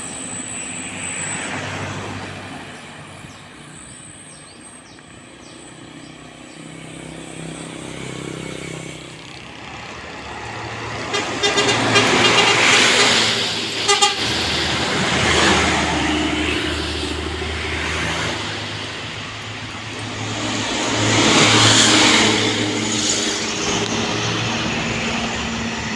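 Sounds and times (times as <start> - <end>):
heavy vehicle driving past: 5.4 - 25.9
second vehicle passing: 5.8 - 25.9
vehicle horn toots: 11.0 - 14.5.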